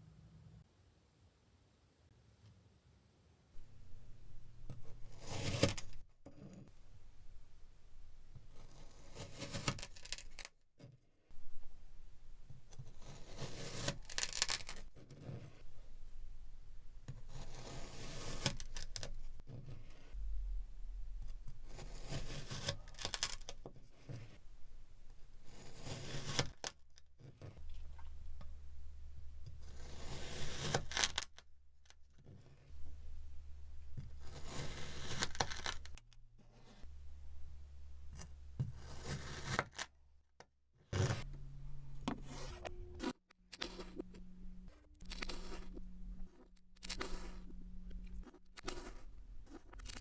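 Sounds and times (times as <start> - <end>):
knife cutting kinetic sand: 4.6 - 6.8, 8.3 - 10.6, 12.5 - 15.7, 17.0 - 20.2, 21.2 - 24.4, 25.1 - 27.7, 29.4 - 32.7, 33.9 - 36.9, 38.1 - 39.9, 40.9 - 41.4, 42.1 - 50.0.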